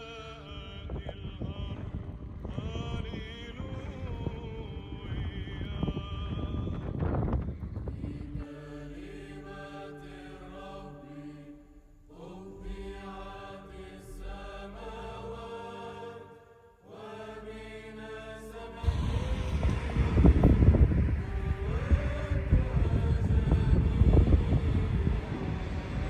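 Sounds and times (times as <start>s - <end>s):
wind rumble on microphone: 0.0s - 9.6s, 18.8s - 26.0s
slow sung chant: 0.0s - 26.0s
steady low drone: 0.0s - 26.0s.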